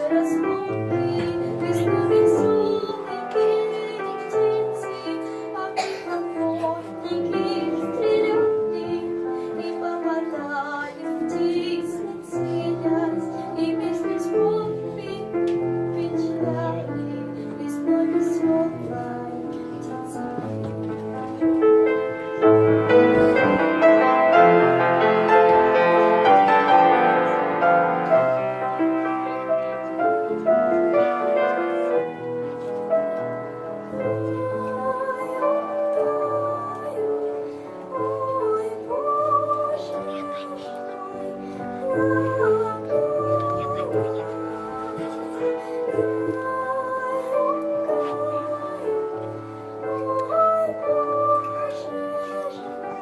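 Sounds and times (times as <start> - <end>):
girl singing: 0.0 - 21.6, 33.8 - 53.0
instrumental accompaniment: 0.0 - 53.0.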